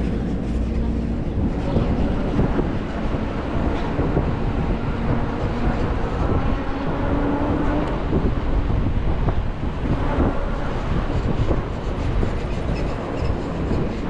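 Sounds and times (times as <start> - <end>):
bus rumble and road noise: 0.0 - 14.0.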